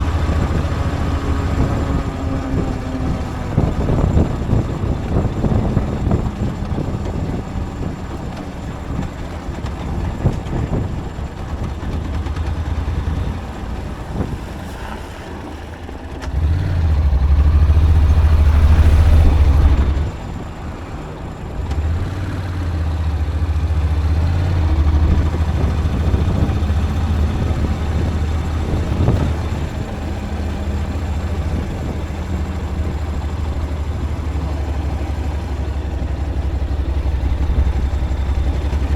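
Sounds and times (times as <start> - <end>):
vehicle engine and road noise: 0.0 - 38.9.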